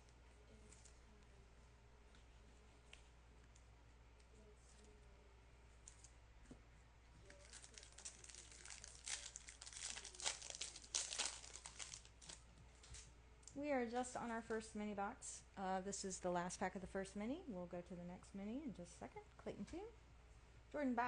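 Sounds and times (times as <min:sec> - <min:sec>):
wrapper tearing and crinkling: 0:07.2 - 0:12.4.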